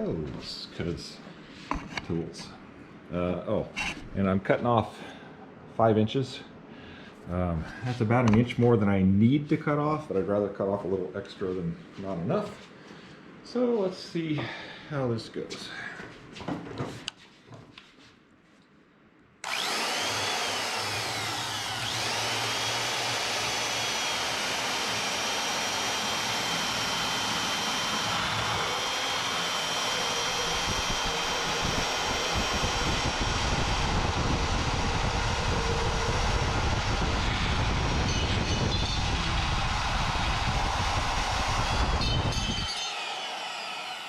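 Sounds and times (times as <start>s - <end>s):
band saw cutting metal: 19.4s - 44.0s
high whine: 25.8s - 43.0s.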